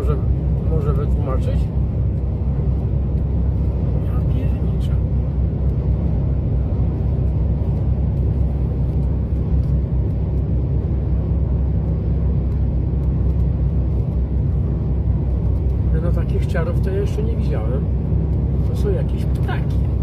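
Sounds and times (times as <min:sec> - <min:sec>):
low vehicle rumble: 0:00.0 - 0:20.0.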